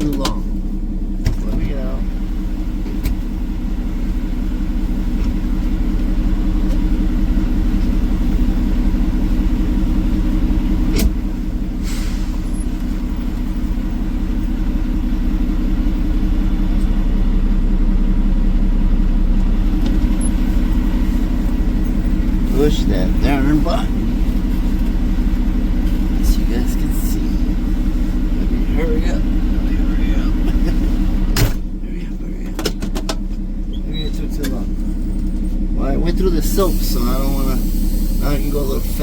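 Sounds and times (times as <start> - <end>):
diesel truck engine idling: 0.0 - 39.0
short air hiss: 11.8 - 12.4.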